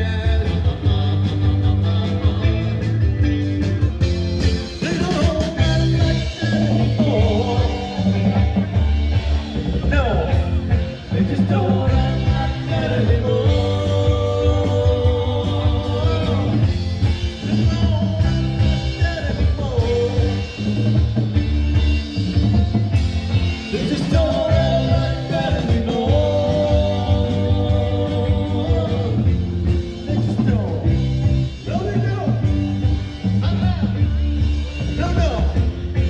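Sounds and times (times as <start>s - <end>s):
rock band playing: 0.0s - 36.0s
person singing: 4.6s - 20.8s, 23.6s - 31.1s.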